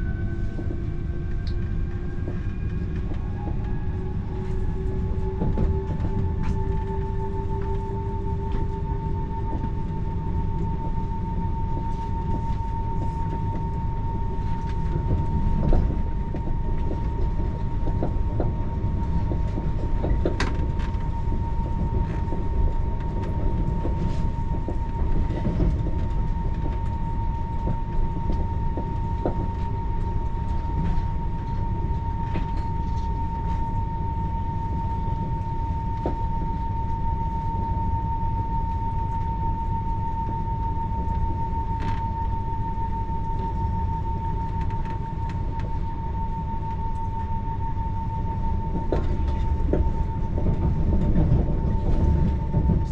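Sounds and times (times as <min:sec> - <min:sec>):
train carriage rumble: 0:00.0 - 0:52.9.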